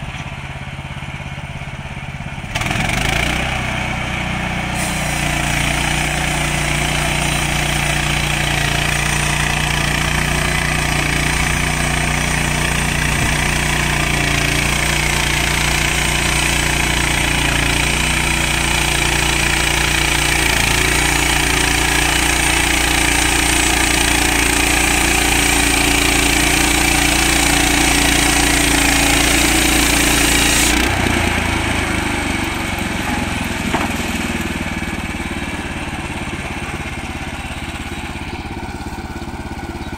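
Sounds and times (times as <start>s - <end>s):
sawmill engine running: 0.0s - 39.9s
band blade cutting wood: 4.8s - 31.5s.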